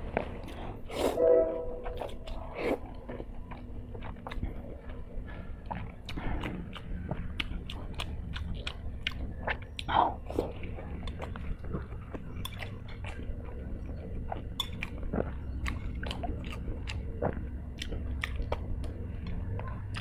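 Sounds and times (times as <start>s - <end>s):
person chewing noodles: 0.0s - 1.2s, 1.8s - 20.0s
wet mouth clicks and smacks: 5.7s - 10.0s, 14.3s - 20.0s.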